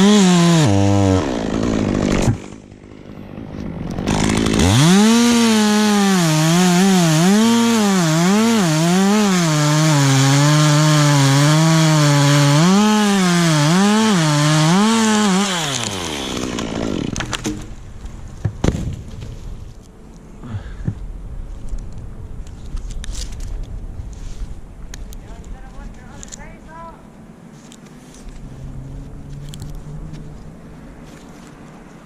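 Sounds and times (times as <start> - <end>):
chainsaw cutting wood: 0.0 - 17.7.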